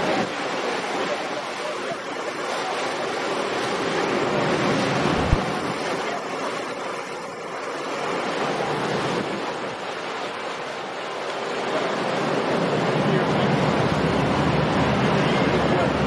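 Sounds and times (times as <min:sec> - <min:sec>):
surf rushing: 0:00.0 - 0:16.0
wind noise: 0:04.3 - 0:06.0.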